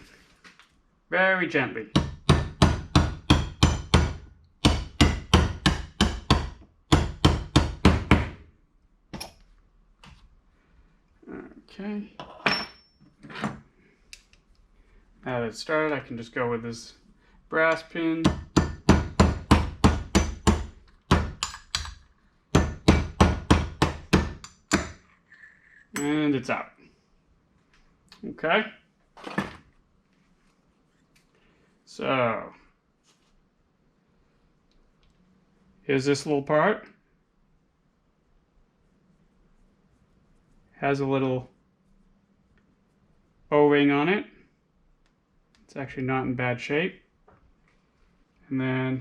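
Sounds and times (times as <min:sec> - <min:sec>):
hammer tapping metal: 0:02.0 - 0:08.3, 0:18.2 - 0:25.0, 0:26.0 - 0:26.2
small hammer tapping brass pin: 0:21.2 - 0:22.0, 0:24.1 - 0:25.0.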